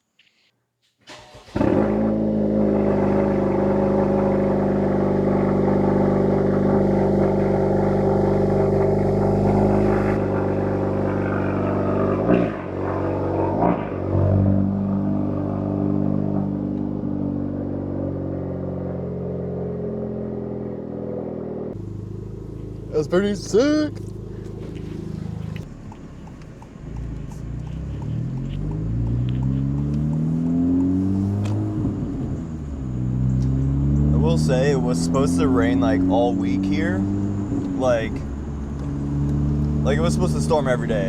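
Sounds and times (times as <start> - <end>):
car engine fast idle: 1.1 - 6.0, 21.8 - 29.9
engine throttle blips: 1.1 - 41.0.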